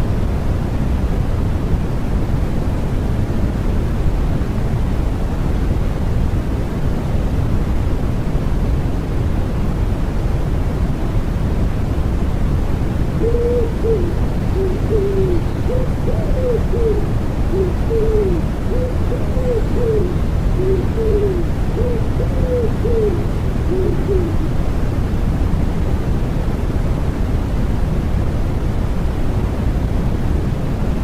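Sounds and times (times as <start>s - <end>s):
steady white noise: 0.0s - 31.0s
pigeon cooing: 13.2s - 24.6s.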